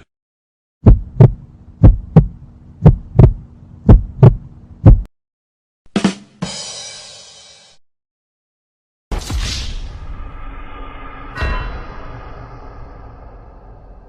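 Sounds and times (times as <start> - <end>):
heartbeat thumps: 0.8 - 5.1
bright hissing crash: 9.1 - 14.0
short hit: 9.1 - 14.0.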